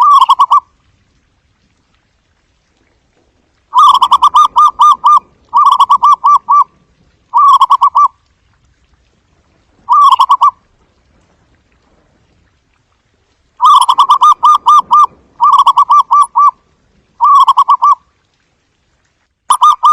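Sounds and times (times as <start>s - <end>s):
dove cooing: 0.0s - 0.7s, 3.7s - 8.2s, 9.8s - 10.6s, 13.6s - 16.6s, 17.2s - 18.0s, 19.5s - 19.9s.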